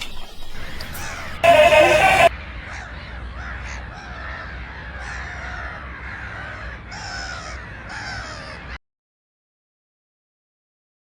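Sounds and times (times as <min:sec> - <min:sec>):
crows cawing: 0:01.1 - 0:08.8.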